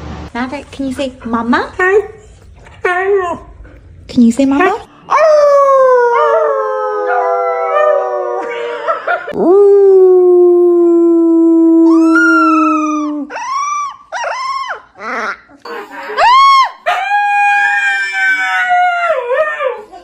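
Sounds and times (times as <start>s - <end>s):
dog howling: 5.1s - 15.2s, 16.2s - 20.0s.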